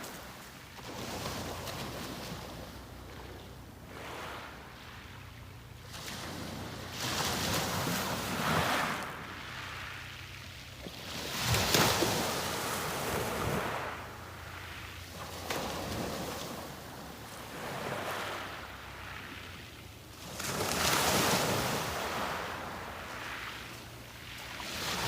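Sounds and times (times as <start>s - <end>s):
sea waves breaking: 0.0s - 25.0s.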